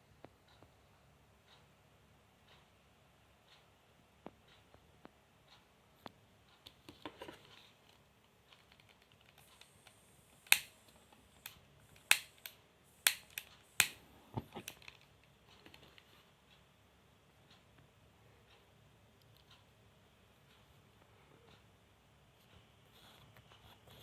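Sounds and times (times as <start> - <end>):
soft ticks: 1.4 - 1.7, 2.4 - 2.7, 17.4 - 19.7
sharp clicks: 8.6 - 14.0.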